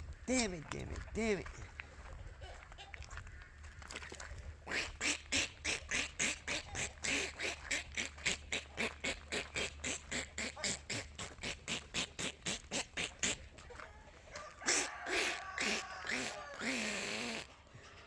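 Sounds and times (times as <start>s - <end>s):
fowl calling: 4.7s - 17.9s.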